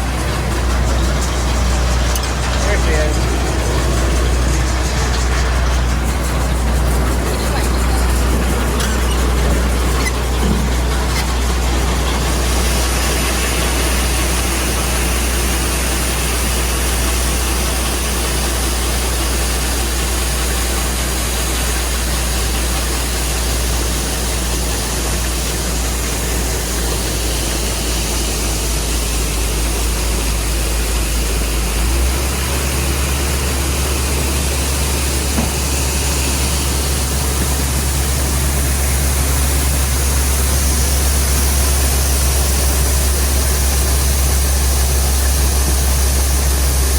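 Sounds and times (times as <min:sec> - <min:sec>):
diesel engine droning: 0:00.0 - 0:46.9.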